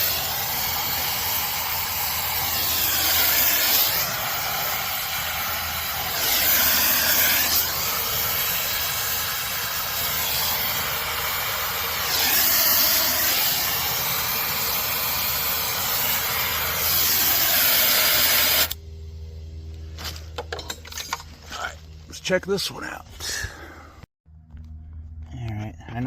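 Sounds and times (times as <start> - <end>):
brazing torch flame hissing: 0.0 - 18.8.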